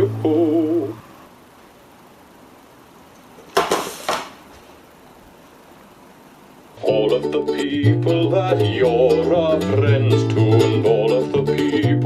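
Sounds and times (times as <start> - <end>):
faint steady hiss: 0.0 - 12.0
hard objects knocking: 3.5 - 4.3.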